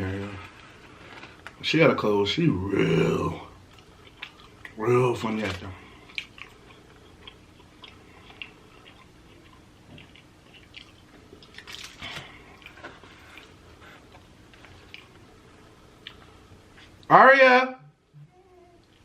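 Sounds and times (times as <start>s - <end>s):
person chewing food: 3.6s - 4.8s, 5.6s - 17.1s.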